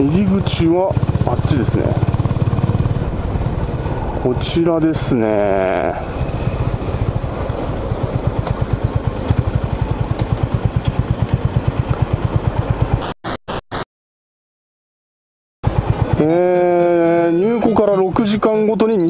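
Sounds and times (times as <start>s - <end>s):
motorcycle engine running: 0.0s - 13.0s, 15.6s - 19.0s
engine blips: 15.6s - 19.0s.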